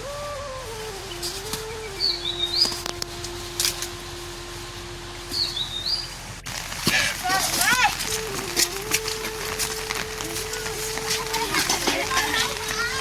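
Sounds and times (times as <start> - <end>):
steady pitched tone: 0.0 - 6.6
bird chirping: 0.9 - 3.8, 5.2 - 6.6.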